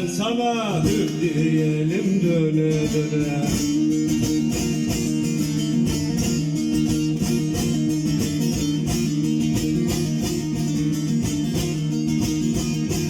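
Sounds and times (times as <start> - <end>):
plucked lute melody: 0.0 - 13.0.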